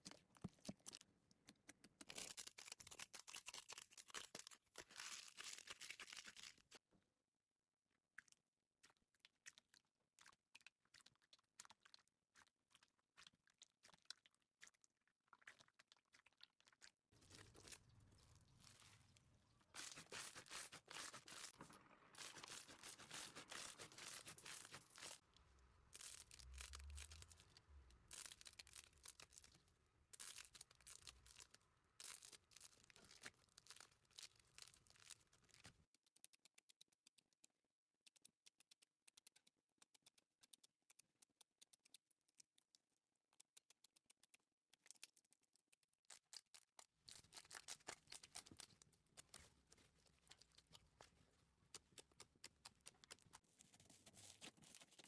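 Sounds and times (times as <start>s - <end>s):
slime crackling and popping: 15.4s - 29.6s.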